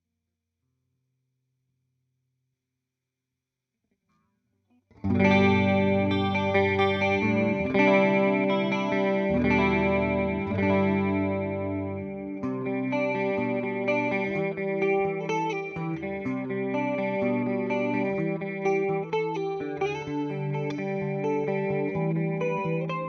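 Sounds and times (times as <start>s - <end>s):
electric guitar ringing chords: 5.0s - 23.0s.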